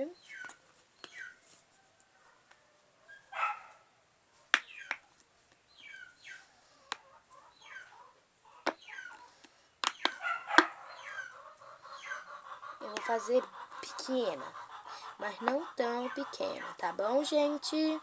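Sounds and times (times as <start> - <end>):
chickens clucking: 0.0 - 3.7, 5.8 - 18.0.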